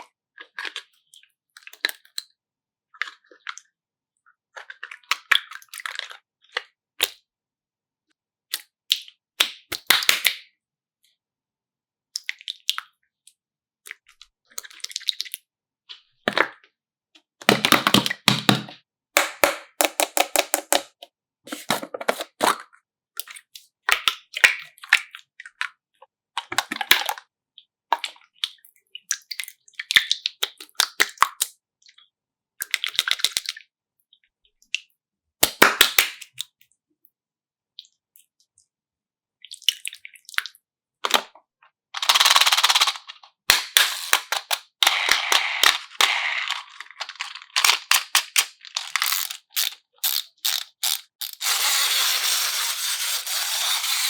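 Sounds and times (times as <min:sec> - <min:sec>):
sharp clicks and crackles from handling: 0:42.0 - 0:51.5.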